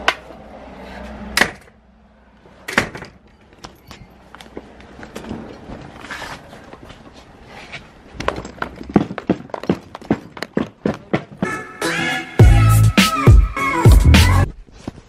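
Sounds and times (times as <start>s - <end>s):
flip-flop footsteps on concrete: 3.6s - 11.7s.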